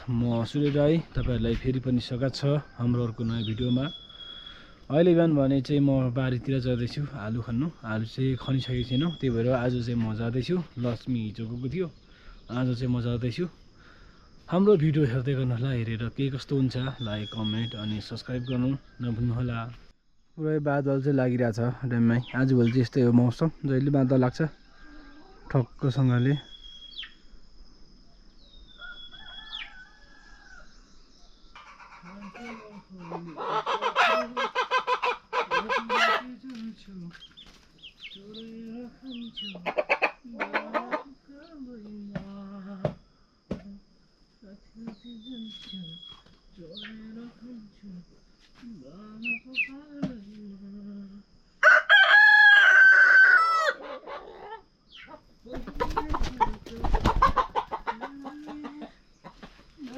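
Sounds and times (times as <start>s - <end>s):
high insect drone: 0.0s - 59.9s
rooster crowing: 28.7s - 30.8s, 51.6s - 54.4s
chickens clucking: 31.6s - 41.2s, 53.0s - 59.9s.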